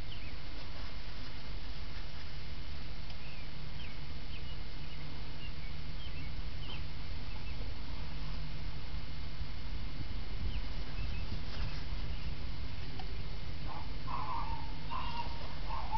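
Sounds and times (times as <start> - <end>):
faint squeaky chirps: 13.7 - 15.9.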